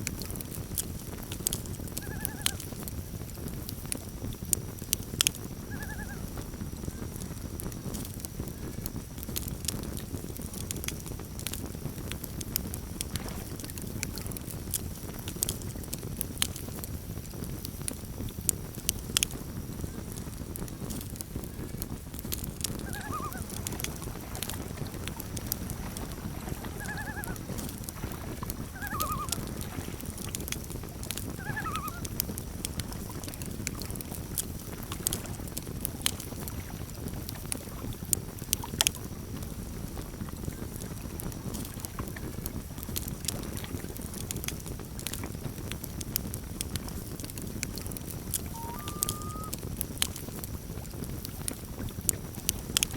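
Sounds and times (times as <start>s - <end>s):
campfire crackling and popping: 0.0s - 52.9s
rush of flames: 0.0s - 52.9s
loons calling: 5.7s - 6.3s, 22.7s - 27.6s, 28.6s - 29.6s, 31.3s - 32.2s, 48.4s - 49.6s.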